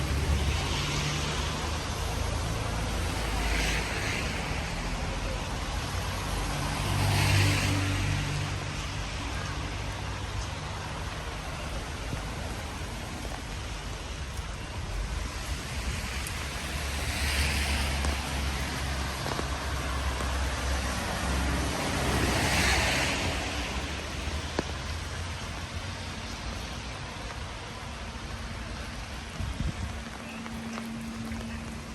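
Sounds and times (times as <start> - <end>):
car tyres hissing on wet road: 0.0 - 31.9
steady rain falling: 0.0 - 31.9.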